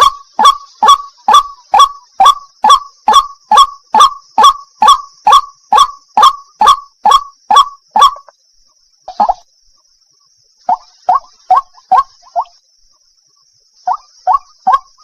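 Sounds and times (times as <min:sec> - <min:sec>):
waterhen calling wak notes: 0:00.0 - 0:08.4, 0:10.6 - 0:12.6, 0:13.8 - 0:15.0.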